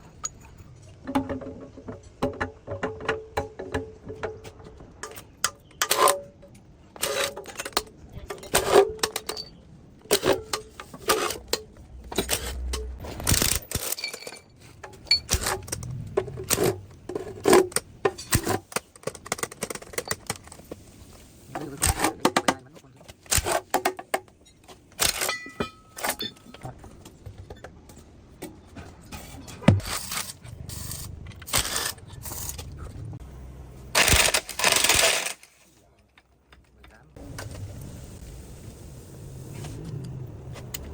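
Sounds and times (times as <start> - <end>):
metal tools clinking and scraping: 0.0 - 2.2, 4.0 - 20.8, 21.5 - 33.0.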